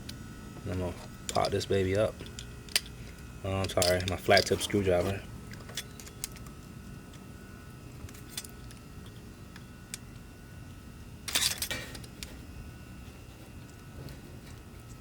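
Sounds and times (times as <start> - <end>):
tool clicks and clinks: 3.6 - 6.2.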